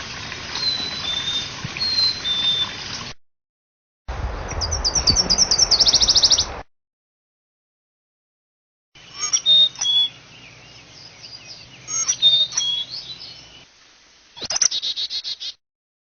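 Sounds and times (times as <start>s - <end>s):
repeated sharp bird notes: 4.4s - 6.6s
small birds chirping: 4.4s - 6.6s, 9.0s - 13.7s, 14.4s - 15.6s.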